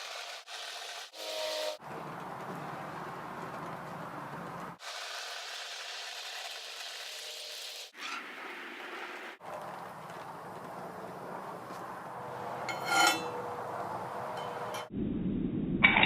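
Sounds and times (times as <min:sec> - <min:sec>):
low hum: 0:12.1 - 0:16.0.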